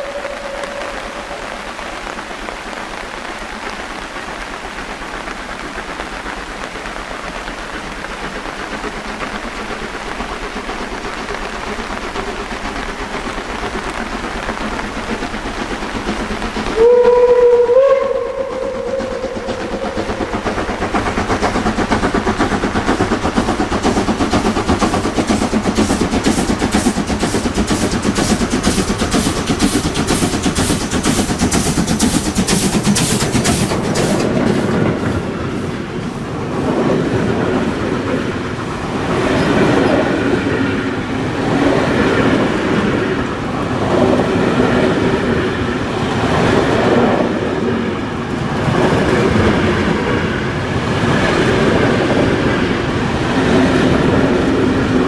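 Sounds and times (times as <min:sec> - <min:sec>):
steam whistle blast: 0:00.0 - 0:02.2, 0:16.8 - 0:20.1
steam train rushing: 0:00.0 - 0:55.0
locomotive exhaust beats: 0:05.4 - 0:36.5.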